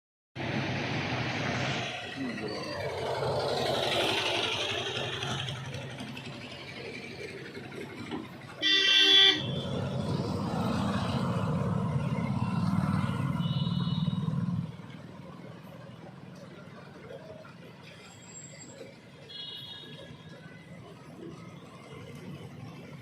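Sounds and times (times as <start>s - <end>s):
street traffic: 0.4s - 23.0s
loud car horn blast: 8.6s - 9.7s, 13.4s - 14.3s.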